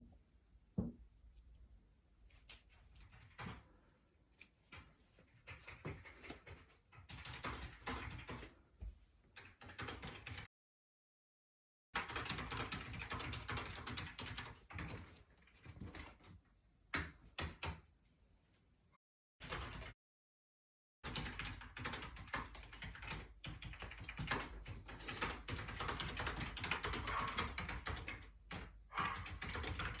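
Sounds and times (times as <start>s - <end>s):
computer keyboard keys clicking: 5.4s - 8.5s, 9.4s - 10.5s, 12.0s - 16.3s, 21.1s - 30.0s.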